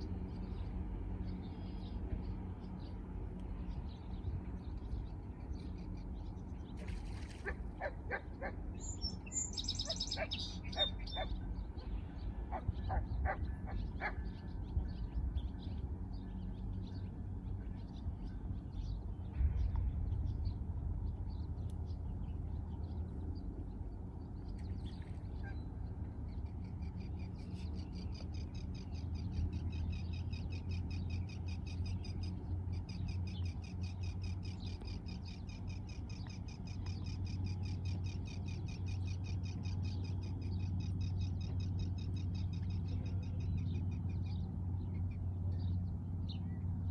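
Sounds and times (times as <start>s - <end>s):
birds chirping: 0.0s - 46.9s
low rumble: 10.4s - 30.2s.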